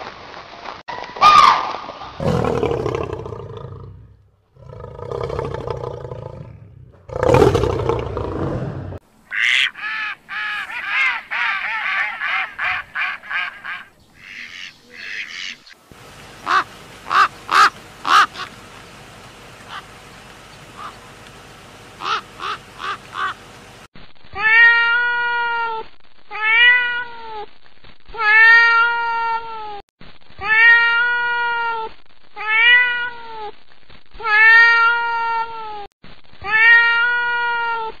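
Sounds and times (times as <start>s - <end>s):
animal roar: 2.2s - 9.0s
quick pitched animal calls: 20.8s - 21.1s, 22.0s - 23.4s
cat meowing: 24.4s - 27.2s, 30.4s - 31.8s, 32.4s - 33.4s, 34.2s - 35.8s, 36.5s - 37.9s.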